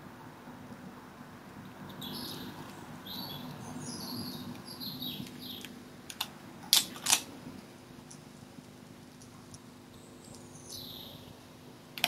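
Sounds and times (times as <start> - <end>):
low steady hum: 0.0 - 12.0
loud sharp clicks: 5.6 - 7.3
songbird warbling: 10.3 - 11.3.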